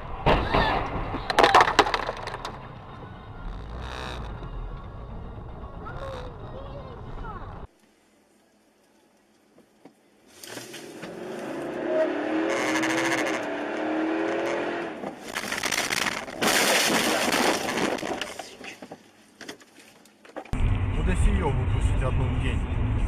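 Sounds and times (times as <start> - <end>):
car engine noise: 0.0 - 7.7, 10.4 - 18.9, 20.6 - 23.0
car tyres squealing: 2.9 - 6.7, 11.1 - 15.3.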